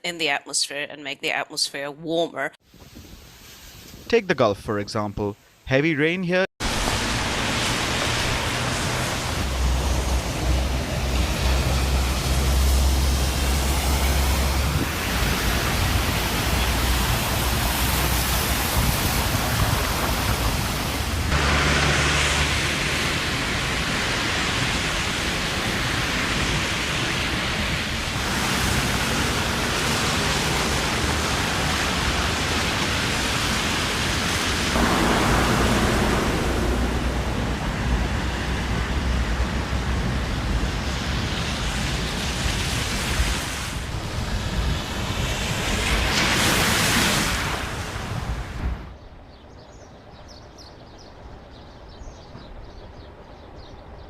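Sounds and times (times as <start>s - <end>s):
heavy rain: 6.6s - 48.8s
rushing floodwater: 6.6s - 49.0s.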